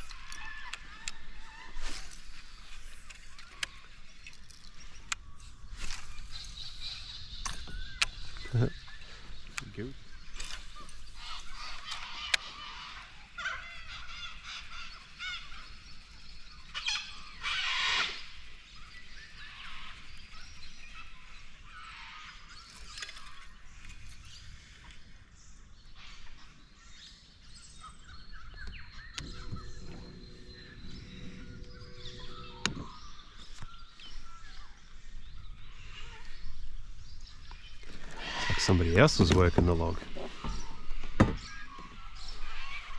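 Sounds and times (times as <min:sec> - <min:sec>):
cockatoos screeching: 0:38.0 - 0:39.2.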